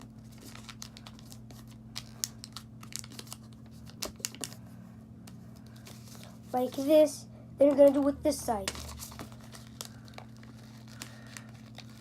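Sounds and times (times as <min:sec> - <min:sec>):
paper crinkling: 0:00.0 - 0:04.7, 0:07.8 - 0:12.0
steady low hum: 0:00.0 - 0:12.0.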